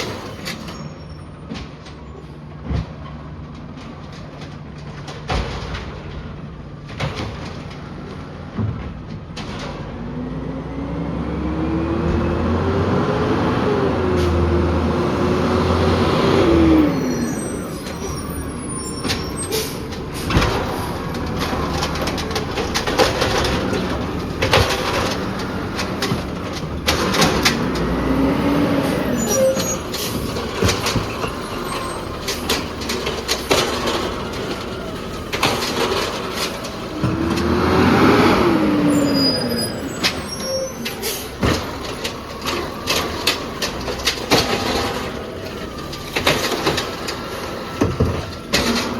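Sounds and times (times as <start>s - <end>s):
garbage truck engine running: 0.0s - 48.9s
sharp knocks and clanks: 2.6s - 10.0s, 17.8s - 39.2s, 39.9s - 48.9s.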